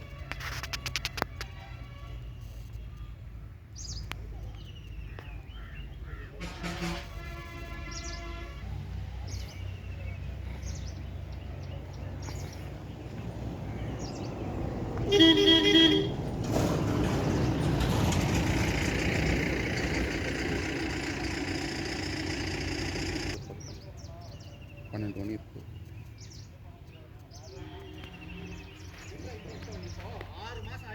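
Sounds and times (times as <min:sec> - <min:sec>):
vehicle horn: 0:06.3 - 0:08.9, 0:15.0 - 0:17.2
low engine rumble: 0:08.5 - 0:23.4
loud vehicle engine: 0:10.2 - 0:23.4.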